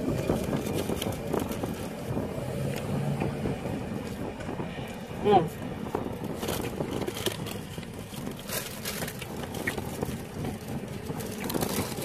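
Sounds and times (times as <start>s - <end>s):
car interior rumble: 0.0s - 12.0s
food packaging crinkling: 6.2s - 12.0s.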